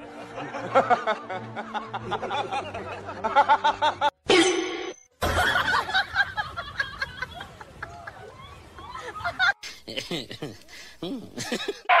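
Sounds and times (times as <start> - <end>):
person snickering and laughing: 9.5 - 12.0.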